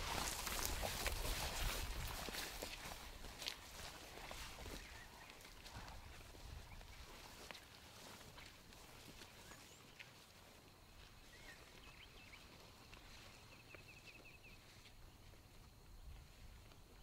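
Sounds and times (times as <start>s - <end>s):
songbird chirps: 3.8s - 17.0s.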